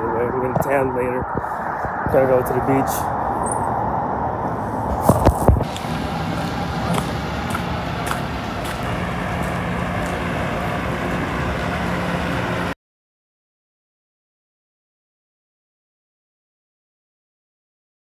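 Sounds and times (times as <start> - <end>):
large vehicle engine hum: 0.0 - 12.8
road traffic: 0.0 - 12.8.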